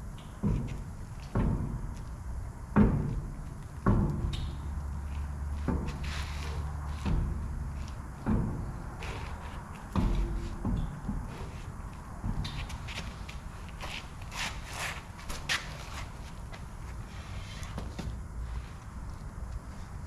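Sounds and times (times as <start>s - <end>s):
low steady hum: 0.0s - 20.0s
heavy ringing knocks: 2.7s - 4.8s, 7.0s - 9.0s, 9.9s - 11.5s.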